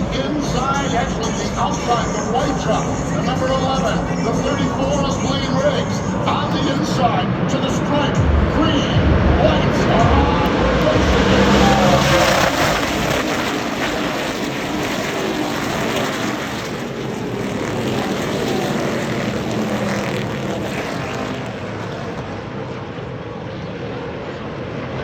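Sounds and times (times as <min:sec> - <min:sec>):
race truck engines roaring past: 0:00.0 - 0:25.0.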